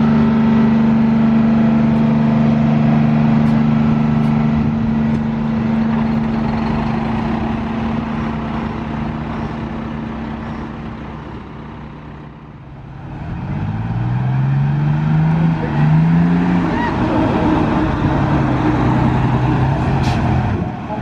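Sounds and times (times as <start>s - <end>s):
bus engine running: 0.0s - 21.0s
engine revving up: 12.8s - 20.8s.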